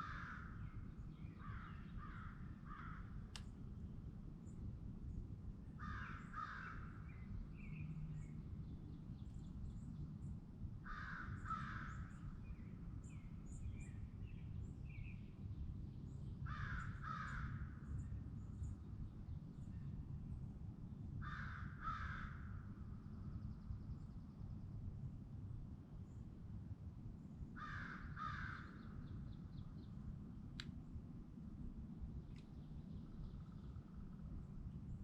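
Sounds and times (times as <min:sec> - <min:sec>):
crow cawing: 0:00.0 - 0:00.6, 0:01.5 - 0:03.1, 0:05.8 - 0:07.0, 0:10.9 - 0:12.1, 0:16.5 - 0:17.6, 0:21.2 - 0:22.5, 0:27.6 - 0:28.9
steady low rumble: 0:22.4 - 0:35.0.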